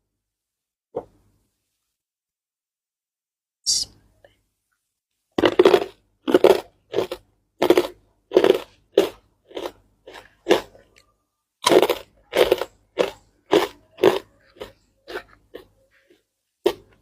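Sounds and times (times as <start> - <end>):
crunchy chips being chewed: 5.4 - 17.0.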